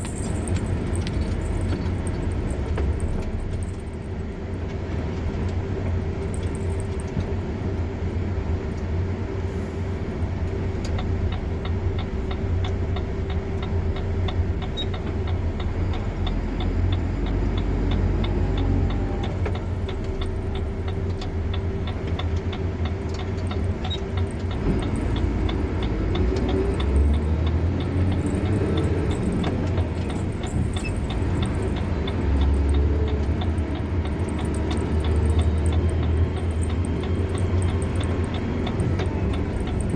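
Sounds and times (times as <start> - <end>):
car engine and tyres rumbling: 0.0 - 39.9
fast light ticking: 19.6 - 39.9.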